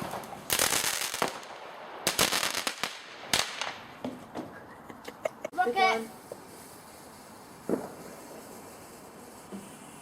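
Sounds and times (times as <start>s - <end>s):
fireworks crackling: 0.0s - 10.0s
firework bang: 6.2s - 10.0s.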